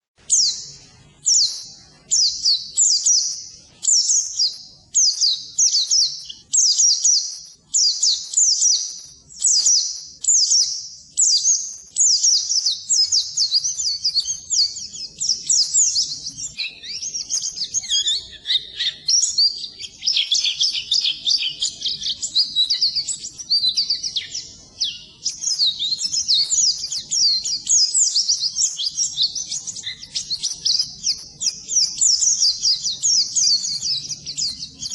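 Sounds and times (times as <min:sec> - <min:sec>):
bird high twittering song: 0:00.0 - 0:34.9.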